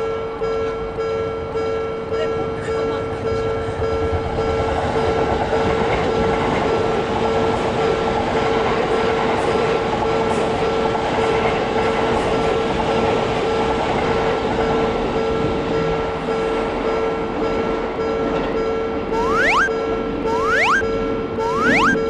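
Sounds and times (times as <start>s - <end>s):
constant tone: 19.2s - 19.7s, 20.3s - 20.8s, 21.4s - 22.0s.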